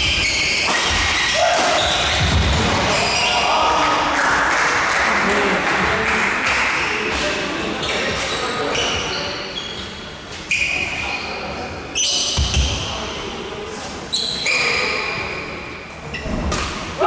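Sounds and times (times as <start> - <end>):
racket hitting shuttlecock: 0.6 - 2.8.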